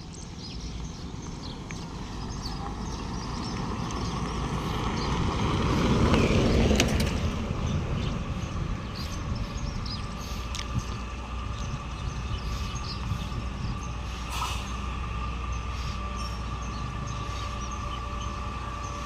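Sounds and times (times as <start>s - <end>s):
truck passing by: 0.0s - 19.0s.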